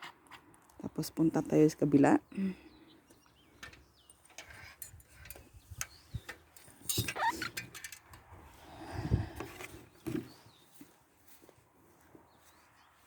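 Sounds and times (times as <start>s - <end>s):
footsteps walking: 10.4s - 13.0s.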